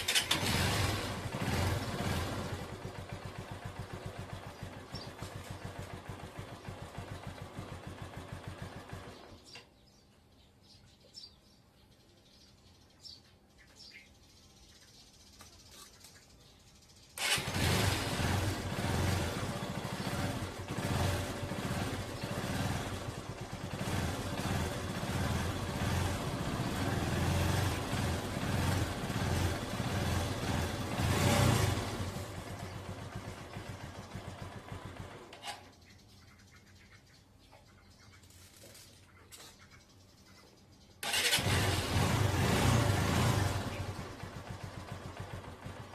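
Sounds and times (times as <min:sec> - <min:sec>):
motorcycle engine revving: 0:00.0 - 0:09.6, 0:17.2 - 0:35.8, 0:41.0 - 0:45.9.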